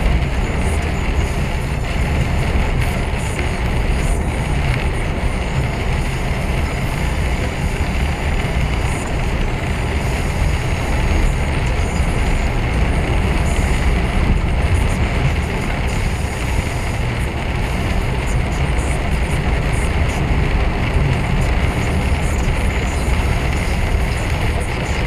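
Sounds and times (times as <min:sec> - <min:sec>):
lorry engine drone: 0:00.0 - 0:25.0
road and tyre noise: 0:00.0 - 0:25.0.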